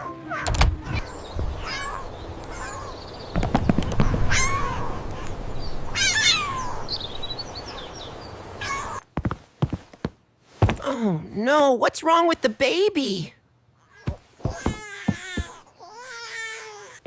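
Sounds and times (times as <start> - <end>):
cat meowing high cries: 0.0 - 3.0, 4.1 - 5.3, 5.9 - 6.8, 8.6 - 9.0
low thumps: 3.3 - 5.2.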